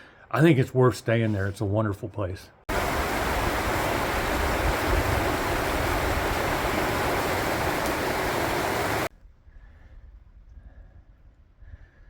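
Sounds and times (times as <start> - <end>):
stream rushing: 2.7 - 9.1.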